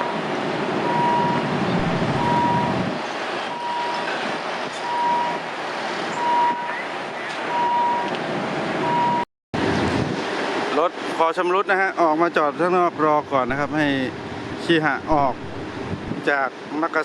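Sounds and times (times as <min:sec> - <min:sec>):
electronic warning beeper: 0:00.9 - 0:02.9, 0:03.5 - 0:04.1
heavy low rumble: 0:01.4 - 0:03.0, 0:13.4 - 0:16.3.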